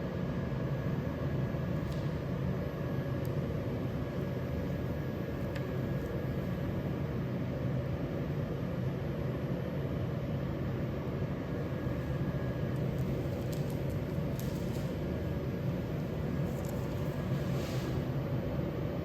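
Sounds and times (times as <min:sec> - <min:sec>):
faint constant hum: 0:00.0 - 0:19.0
machine droning: 0:00.0 - 0:19.0.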